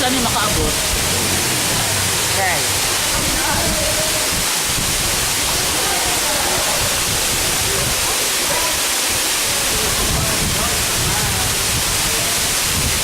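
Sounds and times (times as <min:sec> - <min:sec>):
faint voices: 0:00.0 - 0:12.6
waterfall rushing: 0:00.0 - 0:13.0.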